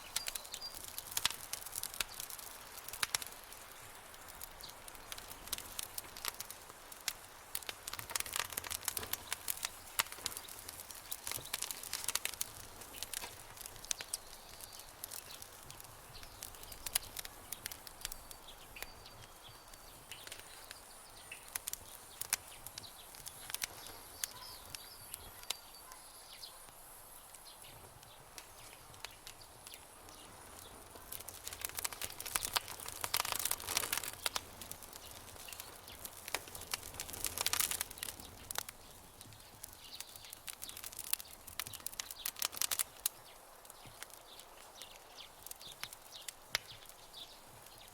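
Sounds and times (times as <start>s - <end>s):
campfire crackling: 0.0s - 47.9s.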